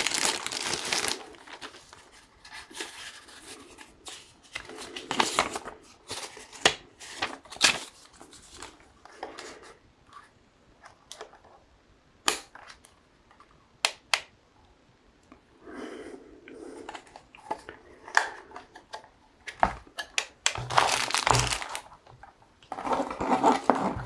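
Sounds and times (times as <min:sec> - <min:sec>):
packaging rustling: 0:00.0 - 0:08.8, 0:20.3 - 0:22.1.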